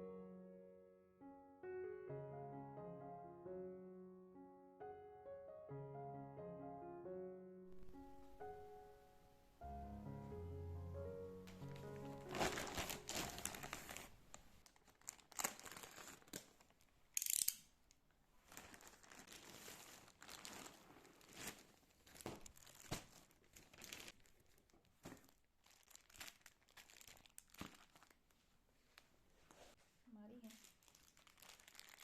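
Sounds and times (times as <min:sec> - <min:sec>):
packaging crinkling: 0:11.5 - 0:16.9, 0:18.4 - 0:28.4, 0:30.4 - 0:32.0
packaging tearing: 0:11.6 - 0:17.5, 0:18.5 - 0:24.6, 0:25.2 - 0:28.2, 0:30.5 - 0:32.0.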